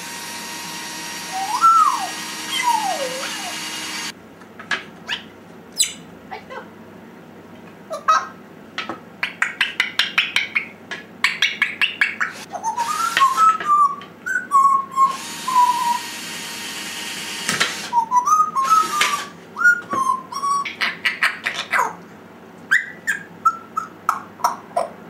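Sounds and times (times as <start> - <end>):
parrot whistling: 1.3 - 4.0, 5.0 - 6.0, 11.8 - 16.1, 17.9 - 21.8, 22.7 - 24.2.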